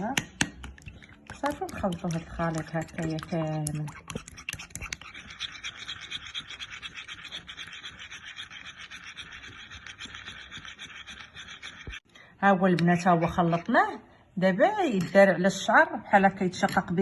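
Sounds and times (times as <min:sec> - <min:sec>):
utensil beating mixture in bowl: 0:00.0 - 0:12.1.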